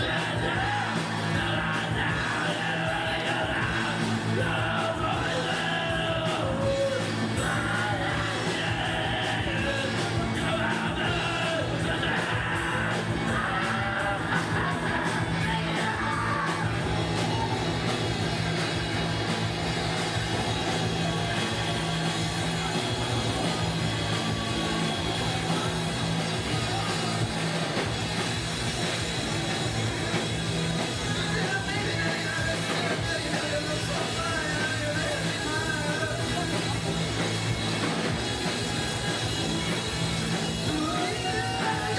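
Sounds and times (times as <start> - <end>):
person singing: 0.0 - 17.5, 40.6 - 41.9
rock band playing live: 0.0 - 41.9.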